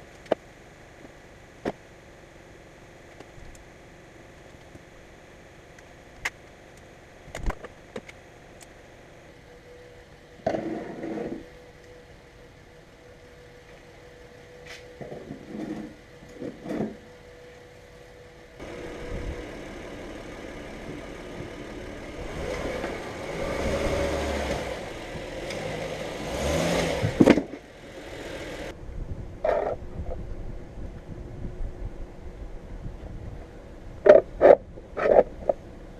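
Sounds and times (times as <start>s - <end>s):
car engine running: 18.6s - 28.7s.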